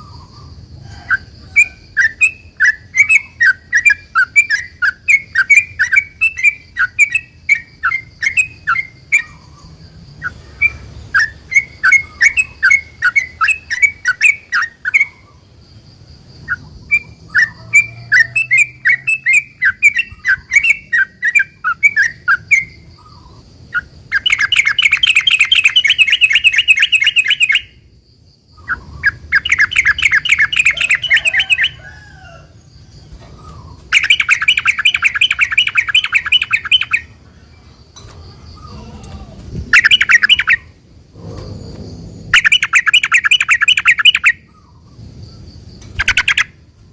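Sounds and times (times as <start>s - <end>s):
bird rapid trills: 16.5s - 27.8s, 28.6s - 32.0s, 33.1s - 37.2s, 39.7s - 46.6s.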